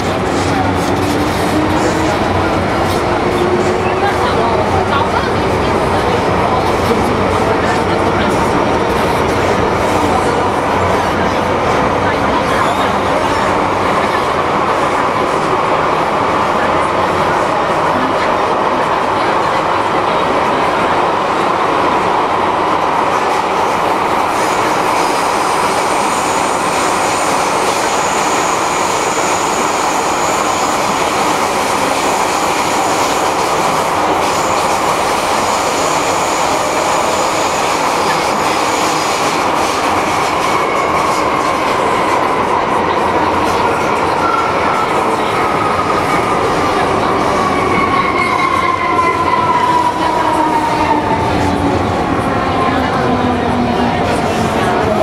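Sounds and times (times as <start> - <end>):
falling whine of slowing train: 0.0 - 55.0
train rumble and rail noise: 0.0 - 55.0.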